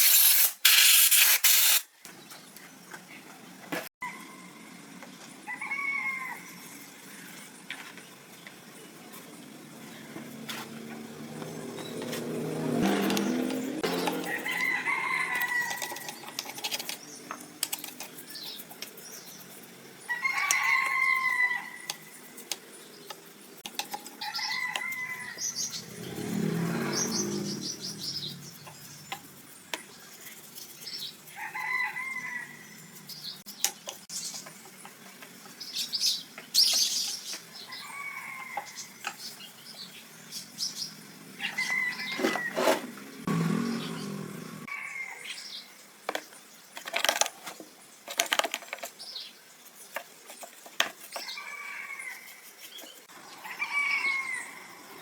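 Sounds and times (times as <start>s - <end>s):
birds calling: 24.2s - 29.2s.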